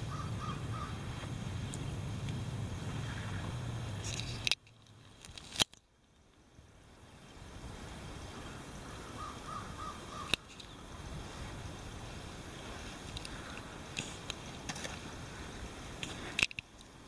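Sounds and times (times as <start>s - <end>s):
bird calls: 0.0s - 4.5s, 8.3s - 14.2s
low rumble of outdoor noise: 0.0s - 17.0s.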